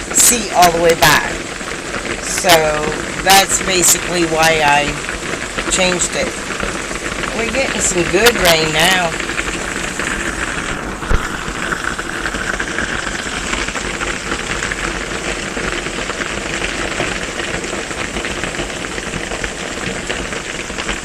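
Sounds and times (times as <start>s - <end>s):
heavy rain on a metal roof: 0.0s - 21.0s.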